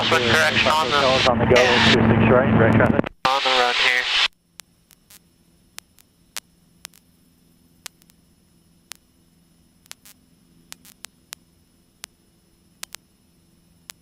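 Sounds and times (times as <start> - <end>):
faint electrical hum and static: 0.0 - 14.0
sharp clicks: 4.3 - 7.1, 7.8 - 8.2, 9.8 - 12.2, 12.8 - 13.0.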